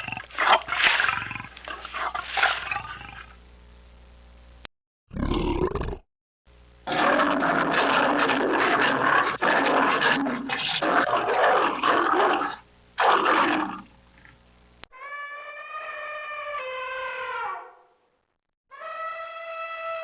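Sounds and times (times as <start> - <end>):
animal rough vocal call: 0.0 - 3.4, 6.9 - 14.4.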